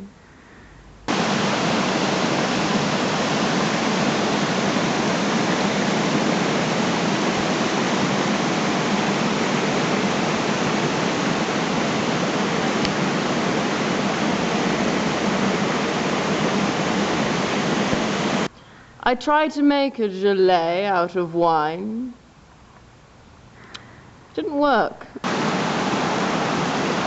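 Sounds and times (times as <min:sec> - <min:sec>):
steady rushing noise: 0:01.0 - 0:18.5, 0:25.2 - 0:27.0.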